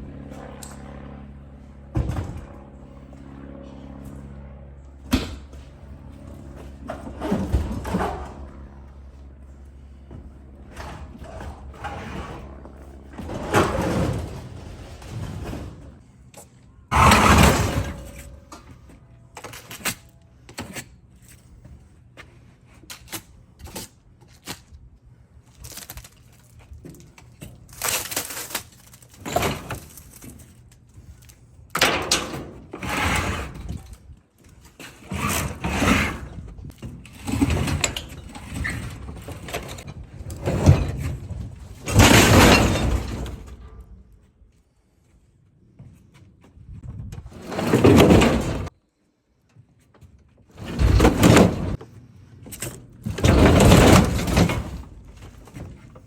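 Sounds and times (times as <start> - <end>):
refrigerator banging and scraping: 6.6 - 8.5, 10.6 - 16.0, 16.9 - 18.9, 29.2 - 30.5, 31.8 - 34.0, 34.7 - 43.9, 47.0 - 48.7, 50.5 - 51.9, 52.6 - 56.0.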